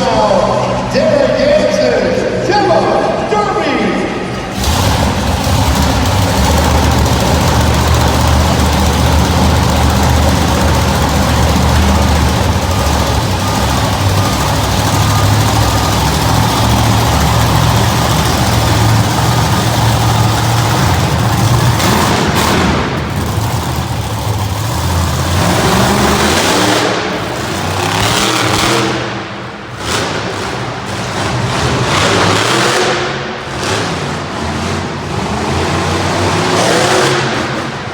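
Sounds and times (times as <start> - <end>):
truck engine revving: 4.2 - 37.9.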